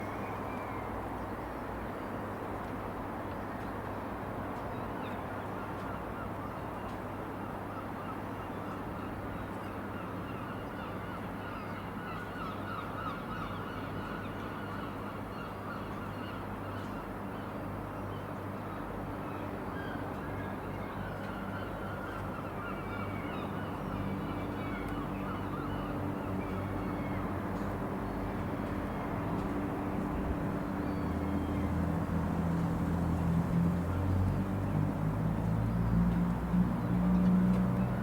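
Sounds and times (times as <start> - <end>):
constant low hum: 23.5 - 38.0.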